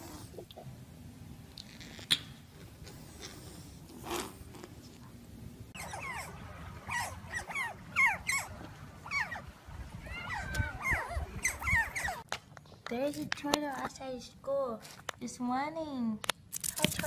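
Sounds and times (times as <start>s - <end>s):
otters chirping: 5.8s - 9.5s, 10.1s - 12.2s.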